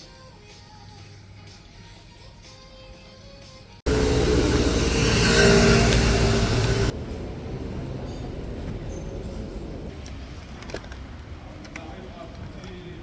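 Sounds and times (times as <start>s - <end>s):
steady tones: 3.9s - 7.5s
loud train rumble: 3.9s - 10.6s.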